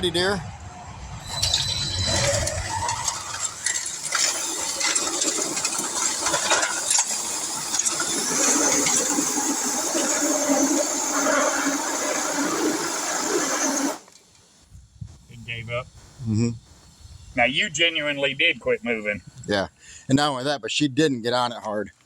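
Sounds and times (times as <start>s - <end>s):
tires spinning: 0.7s - 14.1s
rc truck motor whine: 1.2s - 14.2s.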